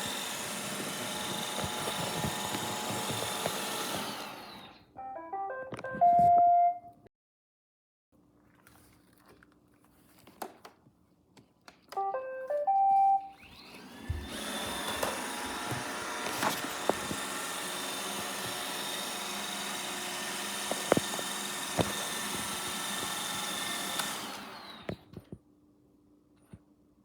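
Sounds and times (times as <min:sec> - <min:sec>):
vacuum motor whirring: 0:00.0 - 0:04.9, 0:13.4 - 0:25.4
robot vacuum beeps: 0:12.0 - 0:13.5.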